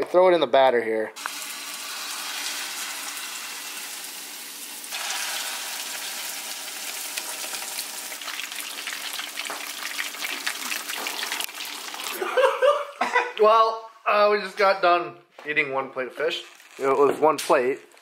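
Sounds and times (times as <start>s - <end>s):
fish sizzling in hot oil: 1.2s - 12.2s
oil crackling and popping: 1.2s - 12.2s, 16.4s - 18.0s.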